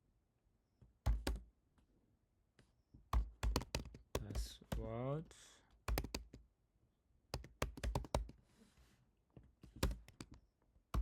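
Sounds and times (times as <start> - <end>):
typing on a computer keyboard: 1.1 - 1.4, 3.1 - 4.8, 5.8 - 6.4, 7.3 - 8.4, 9.8 - 10.4.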